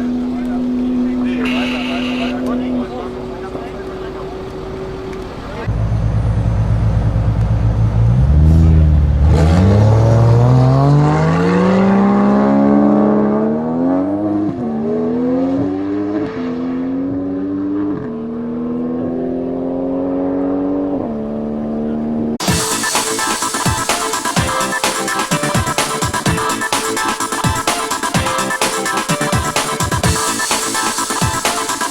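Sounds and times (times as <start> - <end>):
sports car engine accelerating: 0.0 - 23.4.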